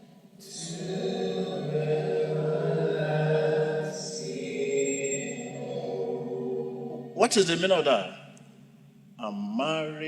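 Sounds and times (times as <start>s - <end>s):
many voices singing together: 0.0s - 7.2s.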